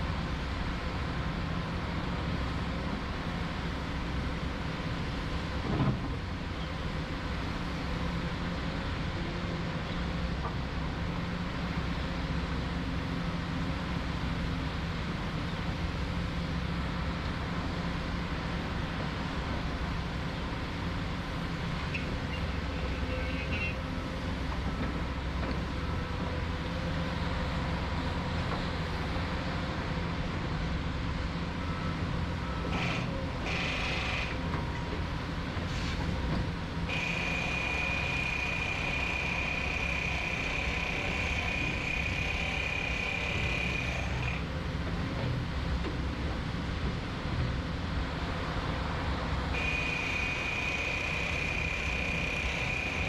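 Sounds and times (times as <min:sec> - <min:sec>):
heavy machinery engine drone: 0:00.0 - 0:53.0
high-pitched reversing alarm: 0:36.9 - 0:44.3, 0:49.6 - 0:53.0.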